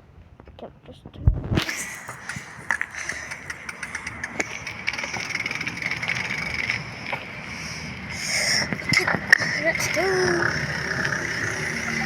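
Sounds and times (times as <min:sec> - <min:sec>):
bicycle clicks and rattles: 0:02.1 - 0:07.3.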